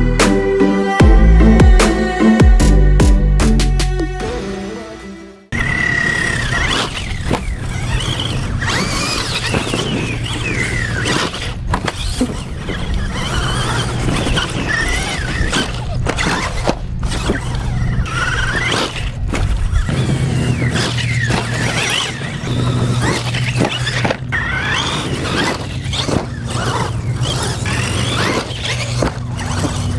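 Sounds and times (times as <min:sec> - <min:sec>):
toy truck electric motor whining: 0:05.5 - 0:29.9
toy truck landing knocks: 0:06.4 - 0:19.9, 0:20.5 - 0:29.9.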